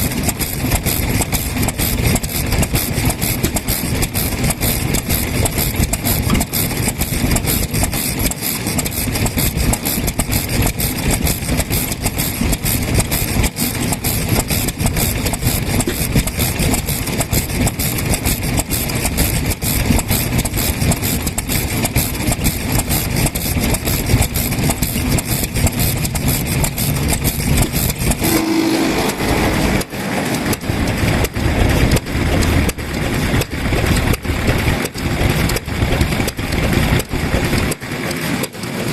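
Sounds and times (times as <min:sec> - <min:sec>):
stationary engine running: 0:00.0 - 0:38.9.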